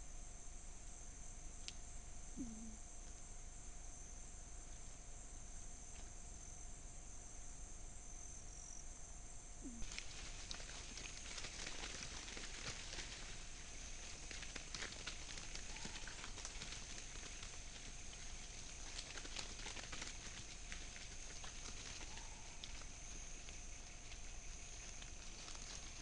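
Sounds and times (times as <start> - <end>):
high insect drone: 0.0 - 26.0
light crackles and ticks: 1.6 - 1.8, 9.8 - 26.0.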